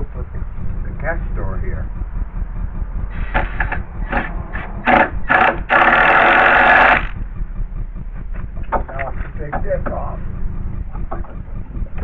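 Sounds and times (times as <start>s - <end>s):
cordless screw gun whirring: 3.2s - 7.2s.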